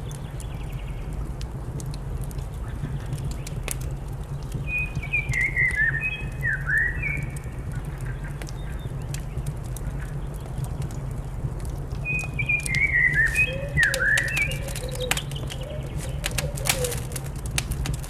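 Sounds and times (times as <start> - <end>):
fireplace crackling and popping: 0.0 - 18.0
bird chirping: 12.0 - 17.2.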